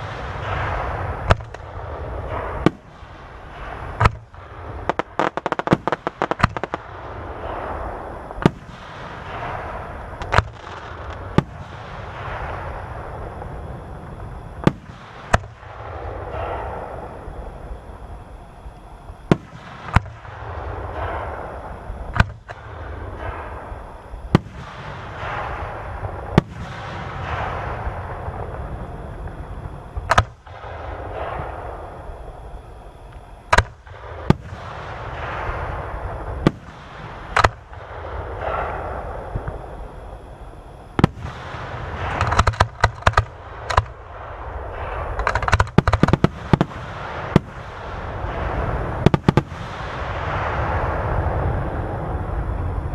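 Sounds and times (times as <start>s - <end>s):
trailing hiss of fireworks: 0.0s - 52.9s
rapid string of bangs: 40.9s - 50.9s
firework shell bursts: 41.0s - 44.2s, 44.8s - 47.8s.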